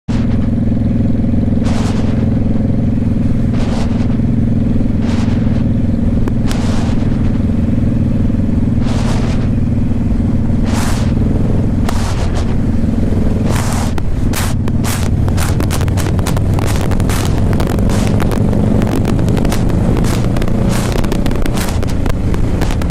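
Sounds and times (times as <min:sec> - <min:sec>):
motorcycle engine running: 0:00.0 - 0:22.9
short whooshes: 0:00.1 - 0:00.5, 0:01.6 - 0:21.9.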